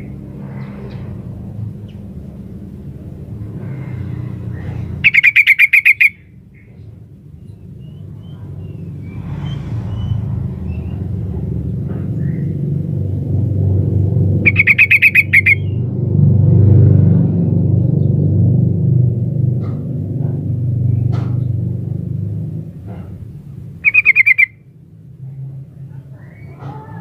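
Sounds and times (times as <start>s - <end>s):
low steady rumble: 0.0s - 5.2s, 6.0s - 27.0s
bird chattering call: 5.0s - 6.7s, 14.4s - 15.8s, 23.8s - 24.6s.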